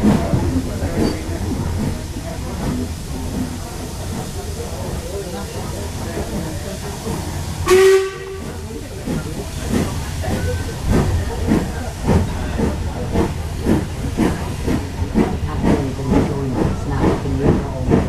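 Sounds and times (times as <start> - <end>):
train running noise: 0.0 - 18.0
locomotive whistle blast: 7.6 - 8.4.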